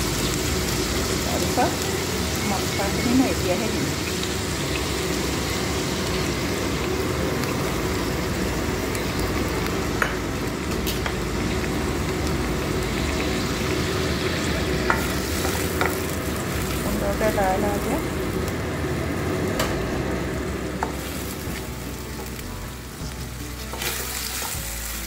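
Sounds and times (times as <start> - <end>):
food sizzling in hot oil: 0.0 - 25.0.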